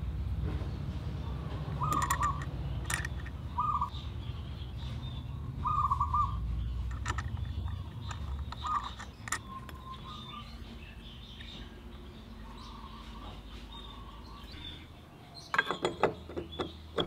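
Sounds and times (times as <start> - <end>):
bird warbling: 1.4 - 3.9, 5.6 - 6.4, 7.5 - 11.8
light metal clicks: 1.9 - 3.4, 6.8 - 9.9.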